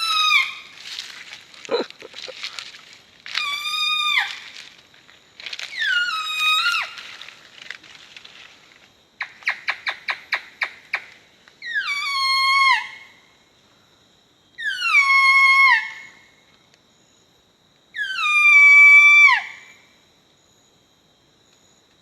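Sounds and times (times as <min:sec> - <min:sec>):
man imitating deer call: 0:01.7 - 0:02.3.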